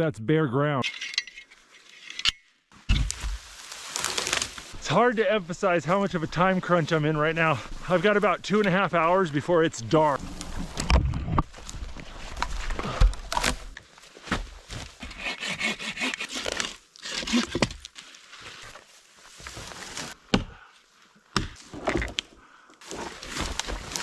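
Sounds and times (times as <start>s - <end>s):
rasping wood: 15.0s - 17.5s.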